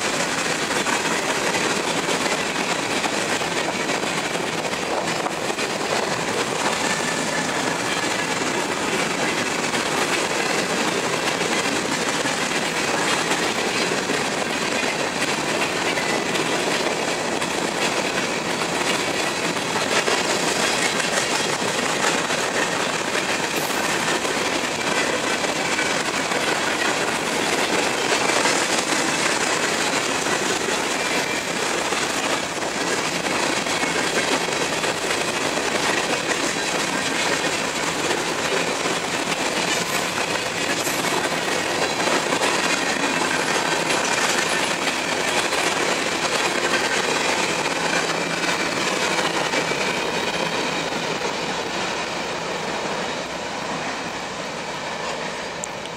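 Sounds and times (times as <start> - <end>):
steel wheels on rail: 0.0 - 55.9.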